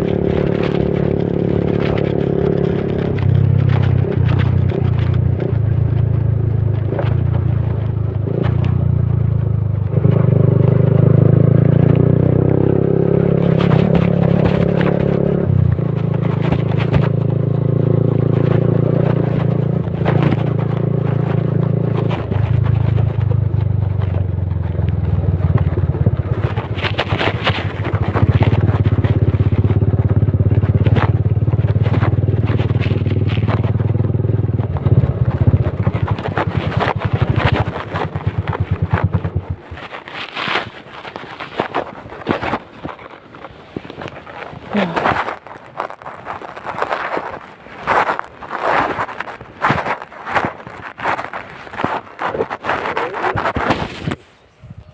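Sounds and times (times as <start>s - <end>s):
motorcycle engine revving: 0.0s - 54.2s
clicks and rattles: 13.4s - 17.4s, 24.8s - 29.8s.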